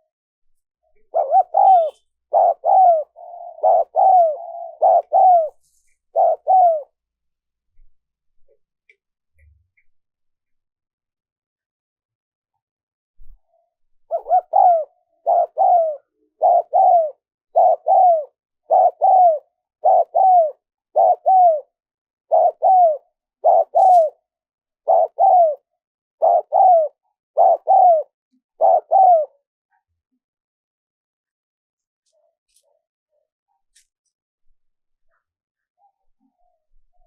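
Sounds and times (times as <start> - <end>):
dove cooing: 1.0 - 7.0, 14.1 - 24.2, 24.8 - 29.4.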